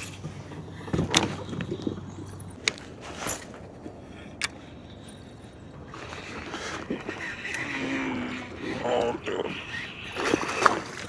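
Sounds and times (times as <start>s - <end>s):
fishing gear clicks and knocks: 0.0s - 7.8s.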